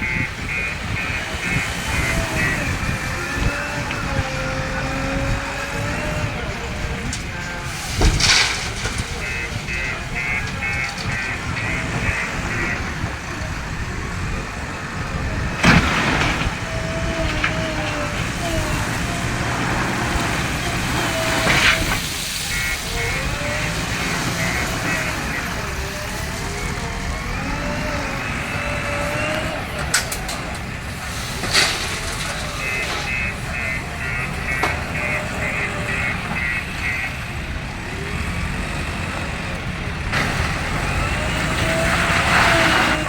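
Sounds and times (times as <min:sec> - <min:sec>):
diesel engine running: 0:00.0 - 0:43.0
loud hiss: 0:18.0 - 0:26.0.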